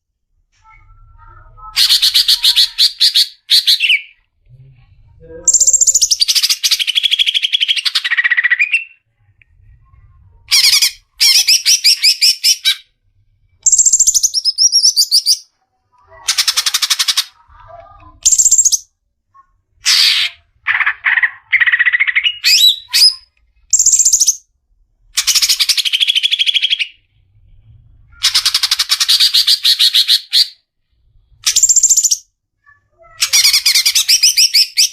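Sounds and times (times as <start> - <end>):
bird singing trilled phrases: 0.7 - 4.2, 5.4 - 9.0, 13.6 - 15.5, 18.2 - 18.9, 19.9 - 24.4, 31.4 - 32.2, 33.0 - 34.9.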